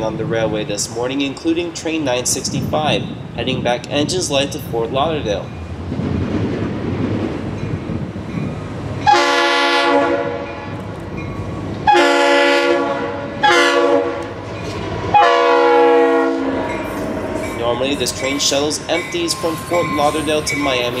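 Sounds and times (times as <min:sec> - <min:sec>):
locomotive chime horn: 0:09.0 - 0:10.8, 0:11.8 - 0:14.4, 0:15.1 - 0:21.0.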